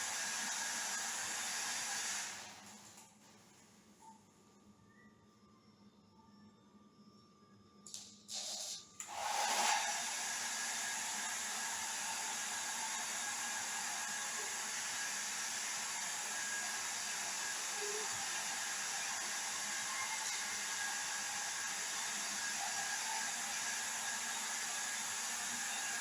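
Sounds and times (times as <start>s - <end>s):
hair dryer blowing: 0.0s - 2.6s, 9.0s - 26.0s.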